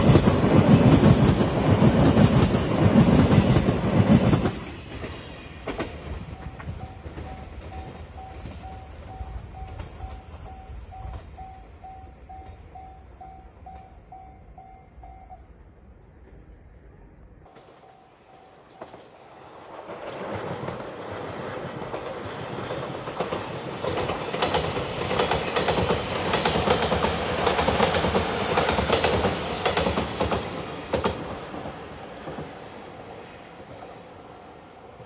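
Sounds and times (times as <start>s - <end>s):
train wheels clattering over rail joints: 0.0s - 11.4s, 19.8s - 32.6s
crossing bell: 6.3s - 15.5s, 17.5s - 19.0s.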